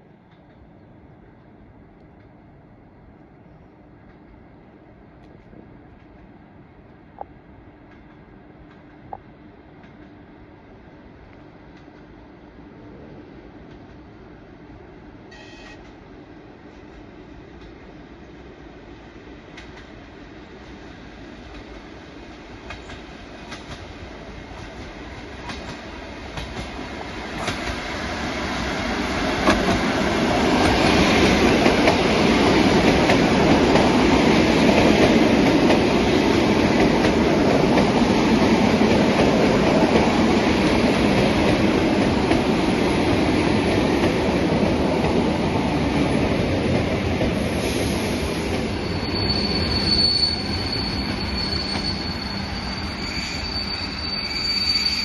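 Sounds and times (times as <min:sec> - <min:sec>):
train rumble: 0:00.0 - 0:55.0
high-pitched wheel and brake squeal: 0:15.3 - 0:15.8, 0:48.7 - 0:55.0
train wheels clicking over rail joints: 0:21.4 - 0:48.8.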